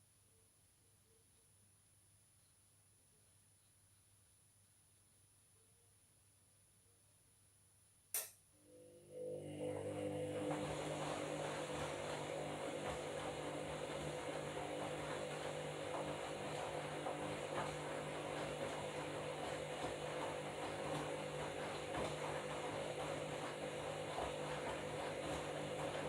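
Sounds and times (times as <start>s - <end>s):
washing machine running: 8.7s - 26.0s.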